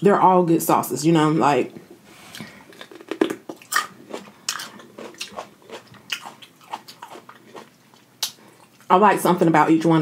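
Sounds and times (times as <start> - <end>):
person chewing crunchy pepper: 2.3 - 8.9.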